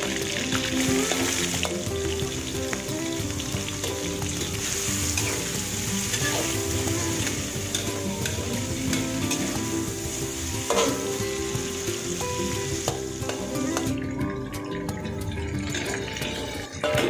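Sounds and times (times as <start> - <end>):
shrimp sizzling in oil: 0.0 - 17.0
soft background music: 0.0 - 17.0
metal spatula scraping and tapping pan: 3.8 - 9.6, 10.6 - 11.4, 12.8 - 14.0, 16.2 - 17.0.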